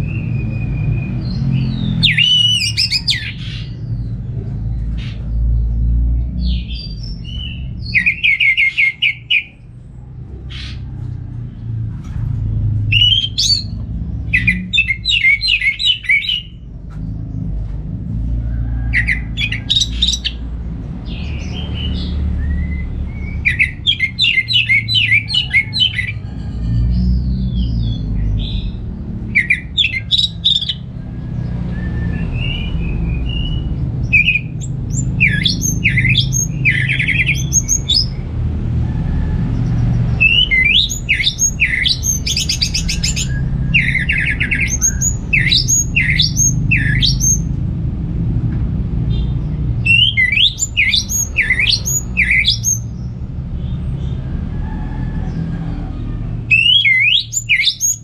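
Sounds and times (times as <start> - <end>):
thrush whistled song: 0.0 - 3.4, 22.0 - 25.5, 40.1 - 47.5, 49.8 - 52.9, 56.5 - 58.0.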